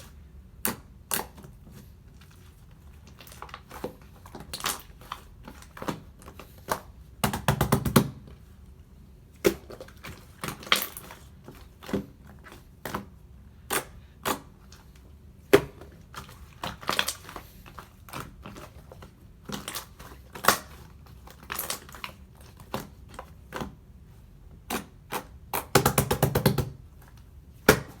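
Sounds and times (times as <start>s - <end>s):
slime clicking and crackling: 3.0s - 7.8s, 9.4s - 12.2s, 15.5s - 23.7s.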